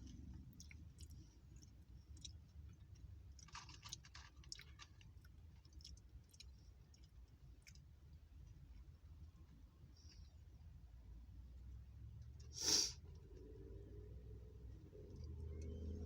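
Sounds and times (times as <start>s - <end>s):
person chewing crunchy chips: 0.5s - 7.8s.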